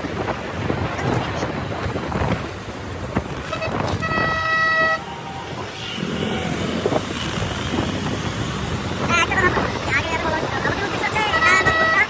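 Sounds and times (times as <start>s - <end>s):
road traffic noise: 0.0s - 12.0s
vehicle horn honking: 3.5s - 6.0s, 11.4s - 12.0s.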